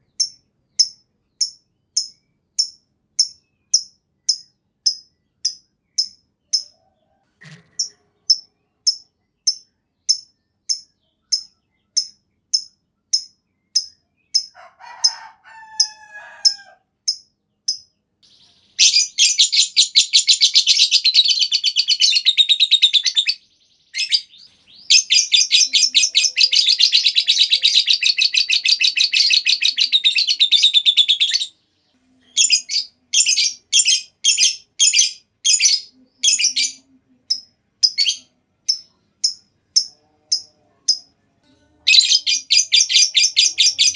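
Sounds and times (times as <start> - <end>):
lovebird sharp chirps: 0.0 - 6.7, 7.6 - 14.6, 32.3 - 41.1, 41.9 - 43.9
lovebird chattering trills: 24.0 - 31.5, 41.9 - 43.9.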